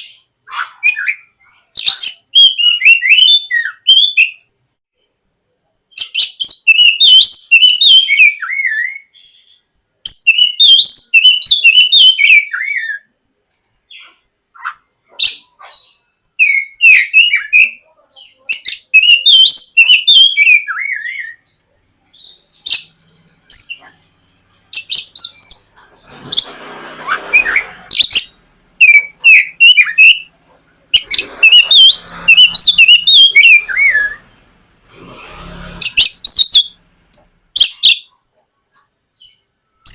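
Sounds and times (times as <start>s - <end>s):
bird singing whistled warbling song: 0.0s - 4.5s, 5.9s - 9.4s, 10.0s - 13.1s, 15.2s - 21.6s, 22.2s - 23.8s, 24.7s - 25.7s, 27.3s - 30.3s, 31.0s - 34.3s, 35.8s - 36.8s, 37.6s - 38.2s, 39.2s - 39.9s.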